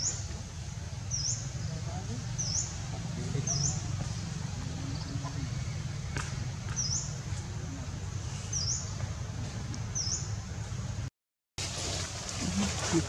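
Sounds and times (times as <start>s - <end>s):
bird chirping: 0.9s - 7.2s, 8.2s - 9.0s, 9.9s - 10.4s.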